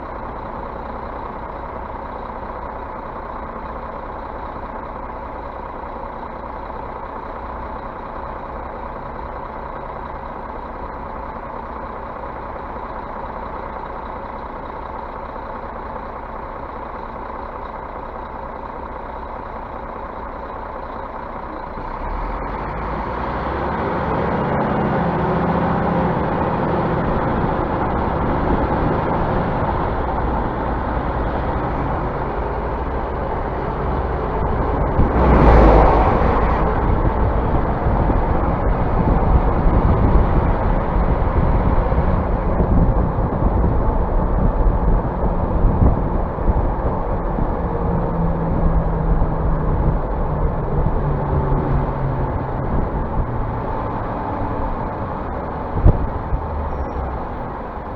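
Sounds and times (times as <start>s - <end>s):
bus engine hum: 0.0s - 57.9s.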